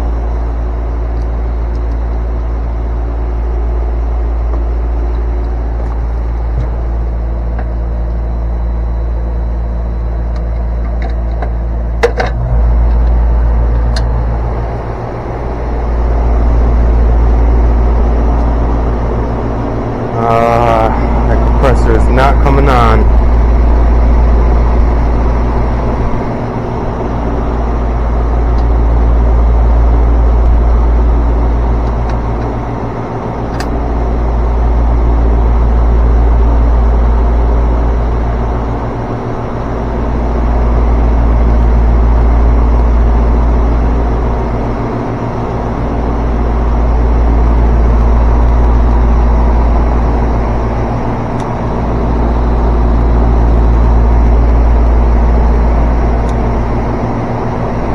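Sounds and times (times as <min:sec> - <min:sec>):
deep rumble: 0:00.0 - 0:57.9
motor hum: 0:00.0 - 0:57.9
click: 0:10.3 - 0:14.2, 0:33.5 - 0:33.8.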